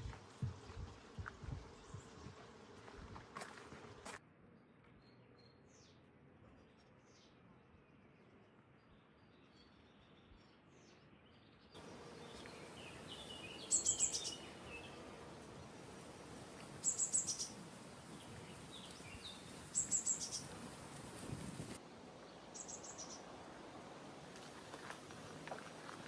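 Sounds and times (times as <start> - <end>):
soft bird chirps: 11.1 - 15.2, 15.8 - 21.8
songbird high rapid trill: 11.8 - 21.8
steady outdoor hiss: 11.8 - 26.0.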